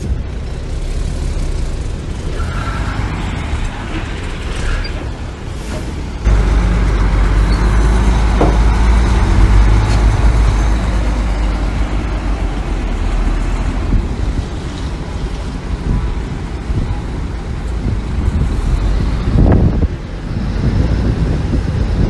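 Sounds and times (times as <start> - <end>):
heavy diesel engine rumbling: 0.0 - 22.0
machinery squeal: 4.6 - 5.1, 7.3 - 8.1.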